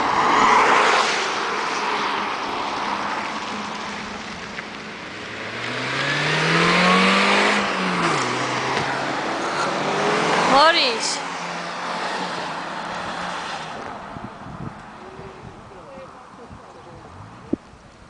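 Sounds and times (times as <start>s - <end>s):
car rushing past: 0.0s - 16.4s
diesel engine accelerating: 5.1s - 13.9s.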